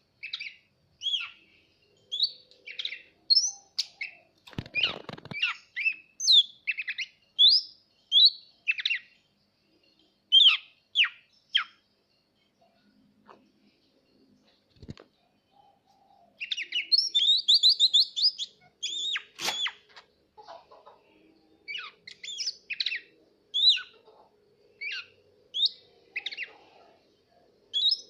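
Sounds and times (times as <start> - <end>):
bird singing whistled chirps: 0.2 - 13.0, 15.2 - 19.9, 21.4 - 24.0, 24.8 - 28.0.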